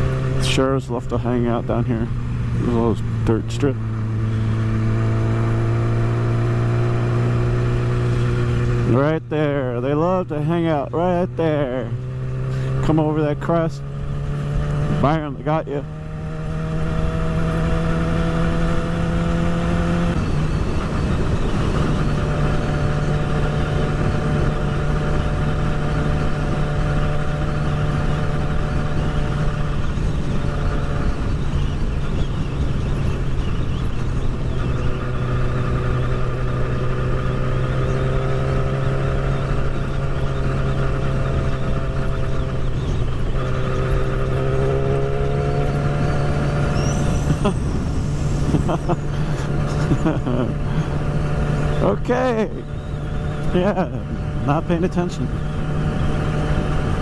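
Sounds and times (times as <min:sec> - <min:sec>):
motorcycle engine cruising: 0:00.0 - 0:57.0
wind noise over helmet: 0:15.8 - 0:51.9, 0:55.2 - 0:57.0.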